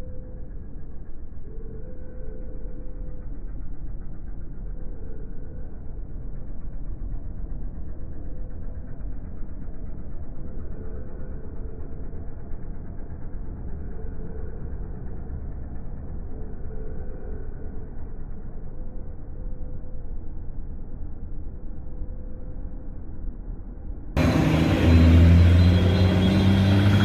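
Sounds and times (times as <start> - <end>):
road vehicles rumbling: 0.0 - 27.0.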